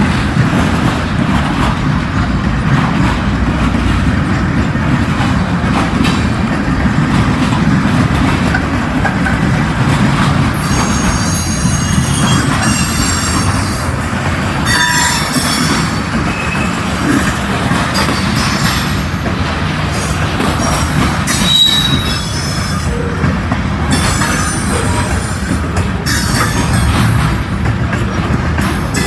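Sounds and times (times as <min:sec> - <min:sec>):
freight train cars rumbling: 0:00.0 - 0:29.0
train wheels squealing: 0:10.5 - 0:19.3, 0:19.9 - 0:23.3, 0:23.9 - 0:27.4, 0:28.6 - 0:29.0.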